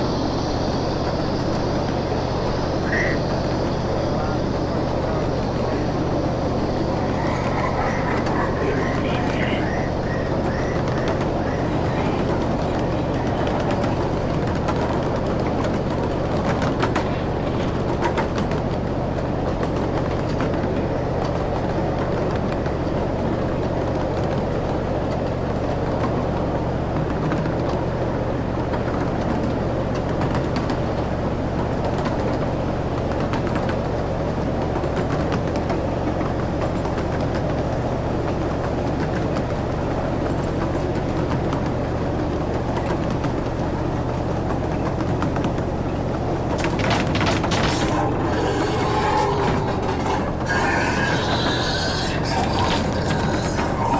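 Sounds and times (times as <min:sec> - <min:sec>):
ride train rumbling: 0:00.0 - 0:53.9
wheel clicks on rail joints: 0:31.8 - 0:53.7.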